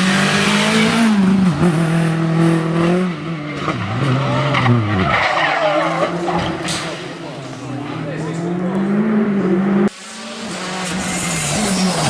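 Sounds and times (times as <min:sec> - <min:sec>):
rally car engine revving: 0:00.0 - 0:12.0
wavering tire squeals: 0:03.2 - 0:07.6, 0:10.5 - 0:12.0.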